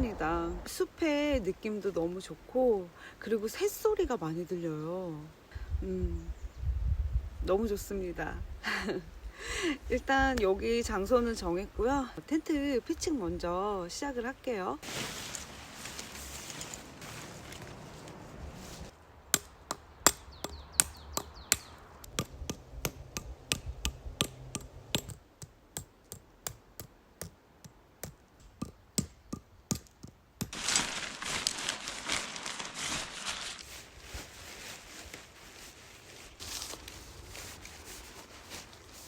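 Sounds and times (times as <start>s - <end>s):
tent rustling: 14.8s - 19.0s, 30.5s - 39.0s.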